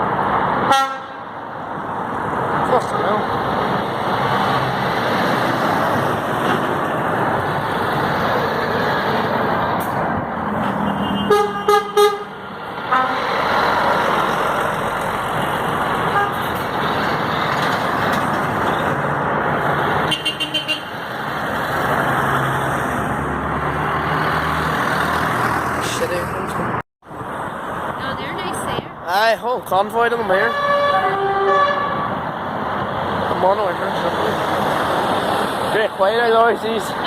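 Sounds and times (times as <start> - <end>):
truck engines and road noise: 0.0 - 37.0
truck horns tooting: 0.7 - 1.3, 10.6 - 13.5, 16.0 - 17.1, 20.0 - 21.0, 30.2 - 32.2.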